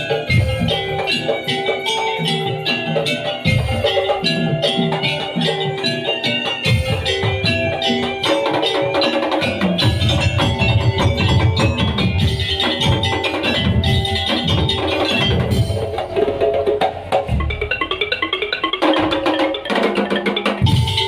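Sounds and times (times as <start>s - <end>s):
pitched melodic percussion: 0.0s - 21.0s
heavy drum strokes: 6.6s - 21.0s.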